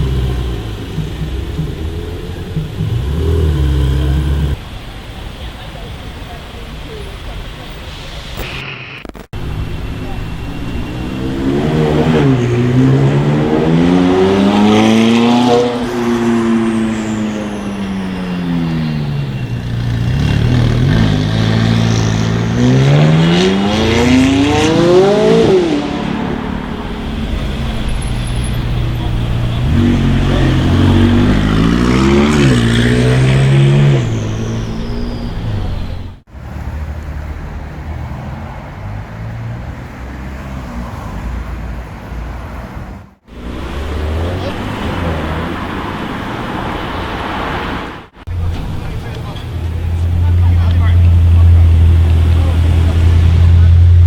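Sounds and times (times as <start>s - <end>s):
supercar engine revving hard: 0.0s - 4.6s, 10.9s - 16.9s, 19.8s - 26.6s, 29.3s - 36.3s
traffic rumble: 0.0s - 54.0s.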